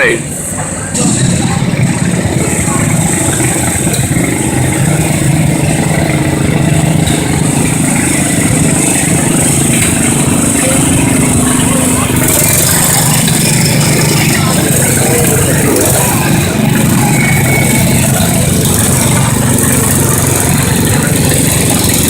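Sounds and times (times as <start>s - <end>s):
garden tractor engine running: 0.0s - 22.0s.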